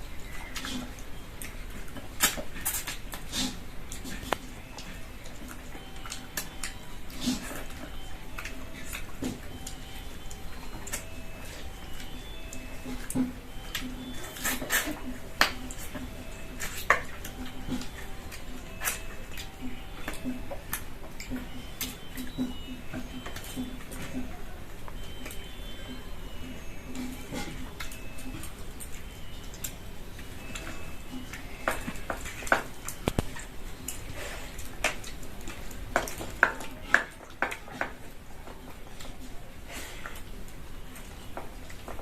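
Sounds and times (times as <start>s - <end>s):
chewing: 0.0s - 42.0s
dishes and utensils clinking: 26.9s - 29.1s.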